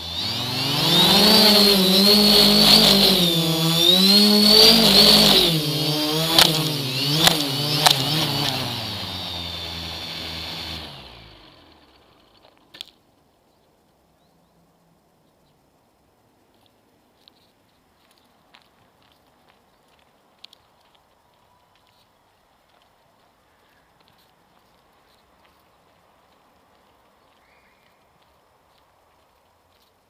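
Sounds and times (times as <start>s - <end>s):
motor humming and whining: 0.0s - 12.4s
sharp clicks: 6.2s - 9.3s.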